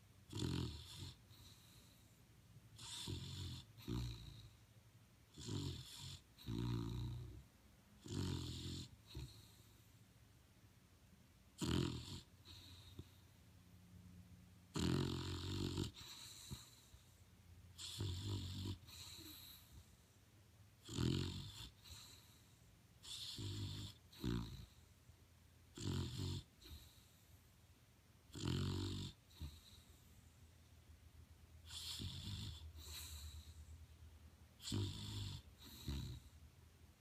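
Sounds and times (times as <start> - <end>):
dog snoring: 0.2 - 2.2, 2.8 - 4.7, 5.3 - 9.9, 11.5 - 13.3, 14.7 - 20.1, 20.8 - 24.9, 25.7 - 27.4, 28.3 - 30.3, 31.6 - 33.7, 34.6 - 36.4.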